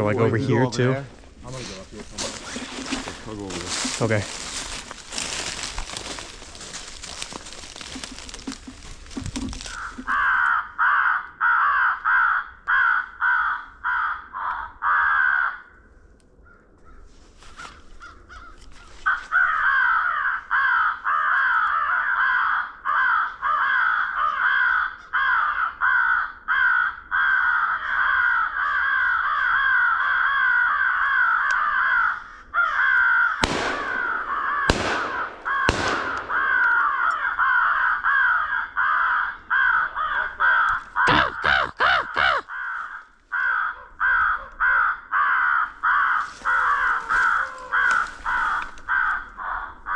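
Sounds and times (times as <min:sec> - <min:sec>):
crows cawing: 0:01.1 - 0:49.9
sharp cracks: 0:02.1 - 0:10.2, 0:33.4 - 0:38.8.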